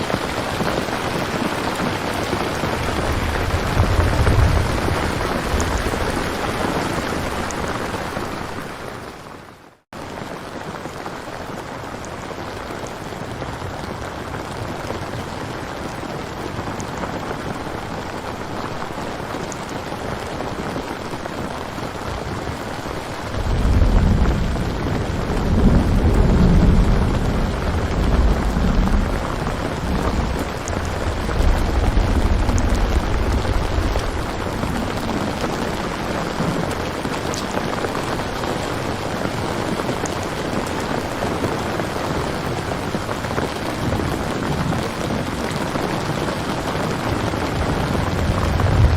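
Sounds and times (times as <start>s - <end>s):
rolling thunder rumble: 0.0s - 8.6s, 22.0s - 48.9s
steady rain falling: 0.0s - 48.9s.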